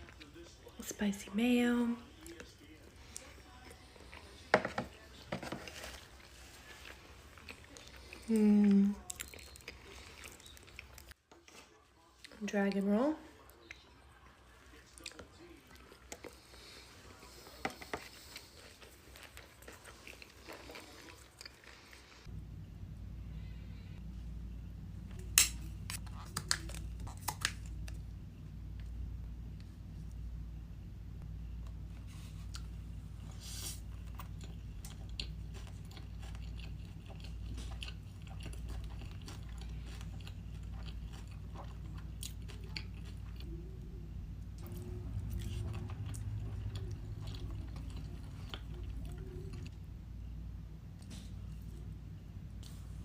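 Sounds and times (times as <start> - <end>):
chewing and biting food: 2.2 - 11.2, 13.4 - 22.2, 32.2 - 43.8, 44.6 - 49.8
steady low hum: 13.9 - 53.0.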